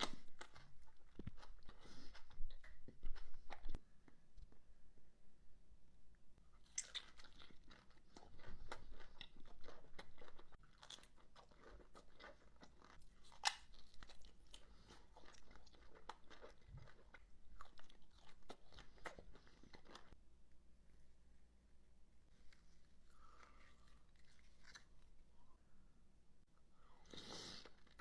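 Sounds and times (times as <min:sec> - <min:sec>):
crunching and chewing fruit: 0:00.0 - 0:03.8, 0:06.6 - 0:20.2, 0:23.1 - 0:25.2.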